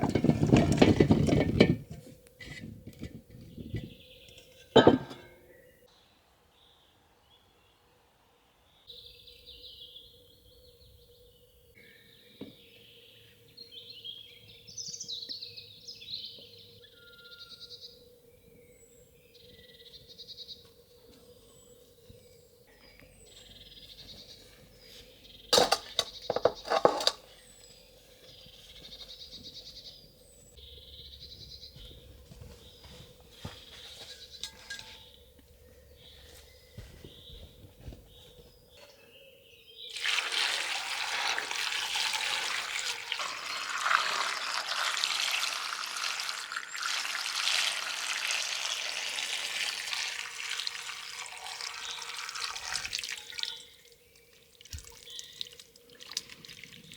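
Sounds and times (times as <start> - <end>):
birds chirping faintly: 2.2 - 56.9
water running: 39.9 - 56.9.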